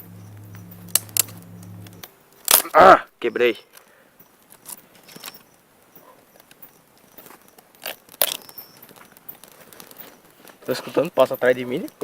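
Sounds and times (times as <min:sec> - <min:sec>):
twigs and leaves crackling: 0:04.5 - 0:12.0.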